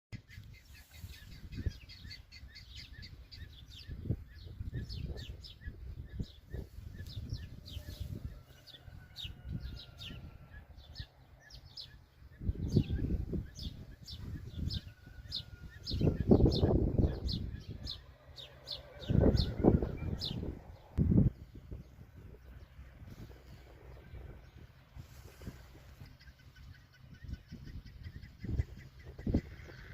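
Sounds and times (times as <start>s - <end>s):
songbird chicks cheeping: 0.2s - 29.9s.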